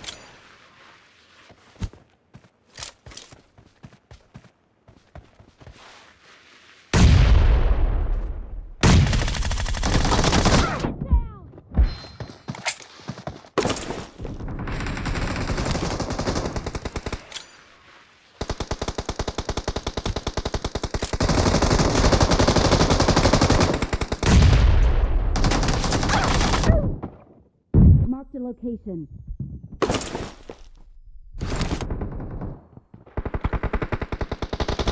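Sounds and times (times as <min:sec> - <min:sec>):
video game automatic gunfire: 0:31.5 - 0:34.9.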